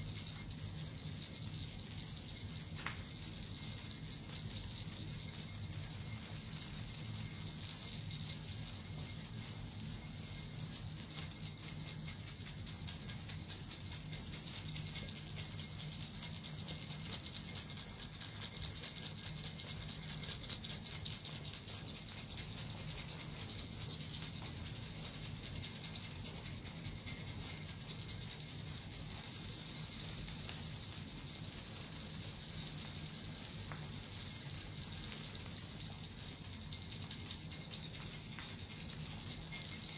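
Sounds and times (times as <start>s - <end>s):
bells and metal rattle jingling: 0.0s - 39.9s.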